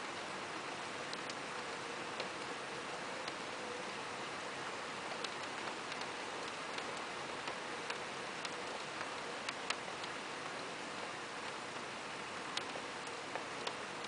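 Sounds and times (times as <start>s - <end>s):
rain hissing: 0.0s - 14.0s
single raindrops ticking: 1.1s - 2.6s, 5.0s - 11.6s, 12.5s - 13.8s.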